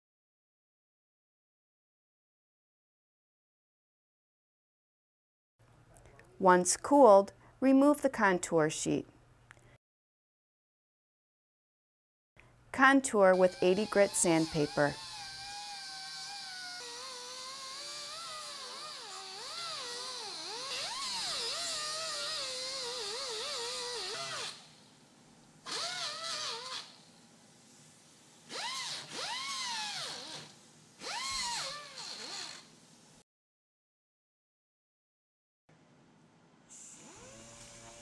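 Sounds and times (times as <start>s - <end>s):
power sander whining: 37.0s - 38.0s.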